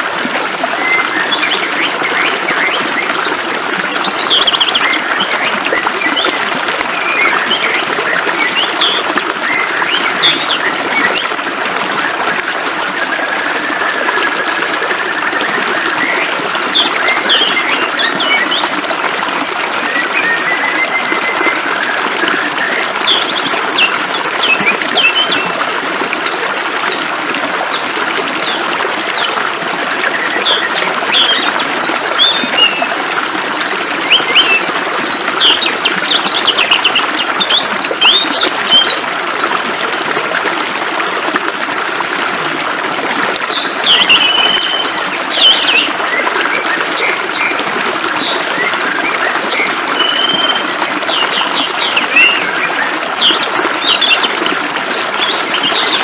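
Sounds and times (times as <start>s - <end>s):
flowing water: 0.0s - 56.0s
birds chirping and trilling: 0.1s - 6.4s, 7.0s - 11.3s, 15.7s - 18.7s, 28.4s - 39.4s, 43.2s - 54.3s.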